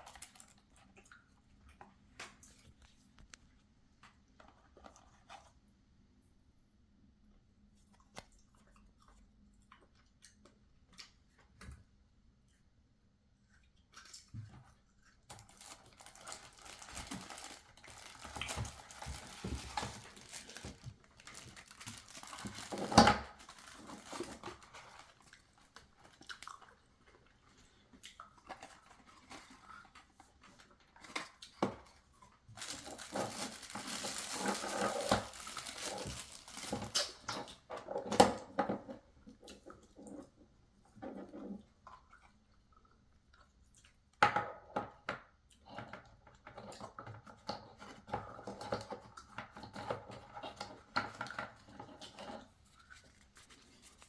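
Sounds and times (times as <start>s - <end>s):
packaging crinkling and rustling: 0.0s - 0.6s, 15.3s - 26.8s, 28.5s - 38.4s, 49.6s - 54.0s.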